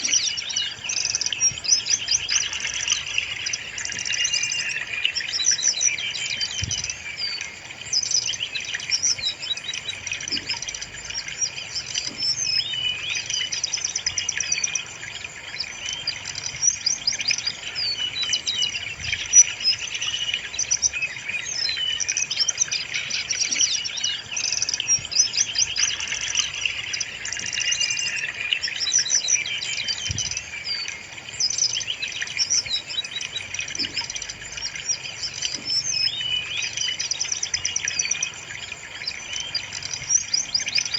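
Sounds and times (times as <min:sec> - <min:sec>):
bird chirps and trills: 0:00.0 - 0:40.9.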